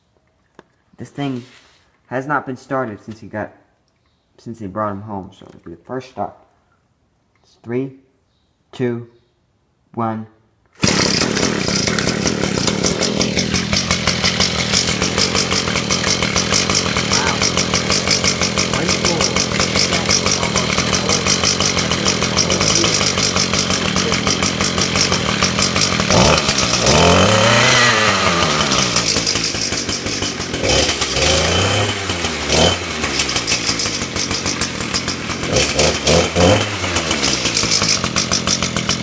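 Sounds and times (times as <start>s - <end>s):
small two-stroke engine revving: 10.8s - 39.0s.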